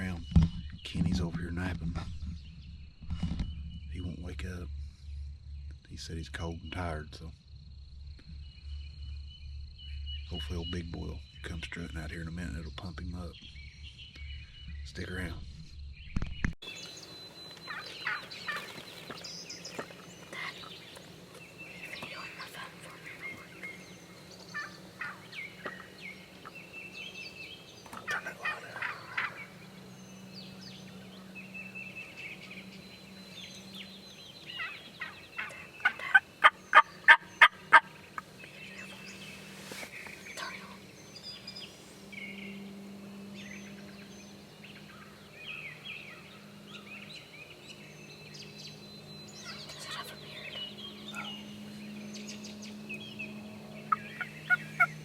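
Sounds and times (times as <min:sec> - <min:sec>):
songbirds chirping: 0:00.0 - 0:55.0
turkey yelping: 0:17.6 - 0:18.9, 0:24.5 - 0:26.6, 0:27.9 - 0:29.7, 0:34.5 - 0:38.3, 0:53.9 - 0:55.0.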